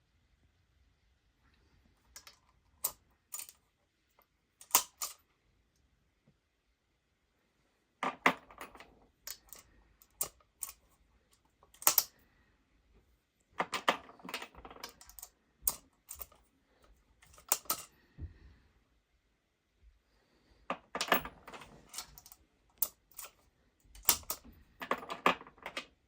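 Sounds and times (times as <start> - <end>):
clicks and clattering of brass cases: 2.1 - 3.6, 4.6 - 5.2, 8.0 - 10.8, 13.6 - 16.4, 17.2 - 17.9, 20.7 - 26.0.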